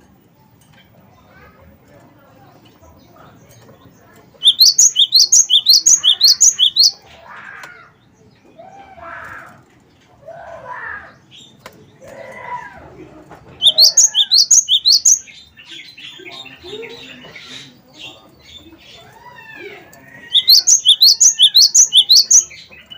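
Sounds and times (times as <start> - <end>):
bird high rising notes: 4.4 - 6.9, 13.6 - 15.2, 20.3 - 22.4
bird soft warbling calls: 4.4 - 6.9, 13.6 - 15.2, 20.4 - 22.5.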